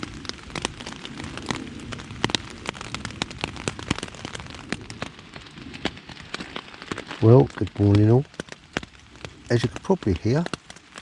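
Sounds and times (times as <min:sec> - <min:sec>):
rain on tent fabric: 0:00.0 - 0:11.0.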